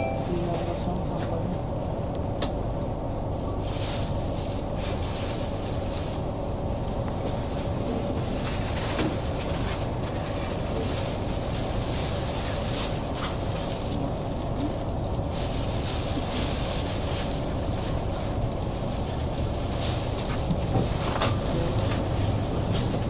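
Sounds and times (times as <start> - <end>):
train carriage rumble and hum: 0.0 - 23.0.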